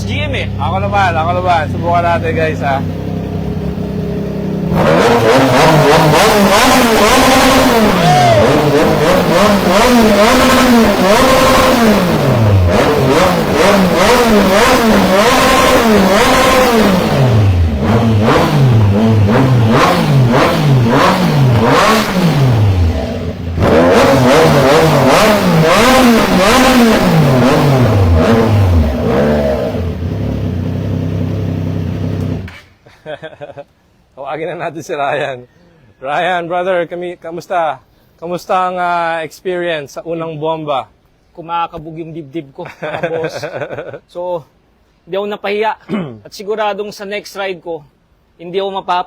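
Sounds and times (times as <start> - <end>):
motorcycle engine revving: 0.0 - 32.6.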